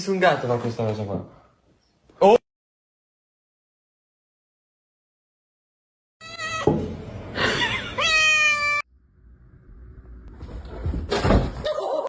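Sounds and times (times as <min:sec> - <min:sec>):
cat meowing: 0:06.2 - 0:06.8, 0:08.0 - 0:08.9.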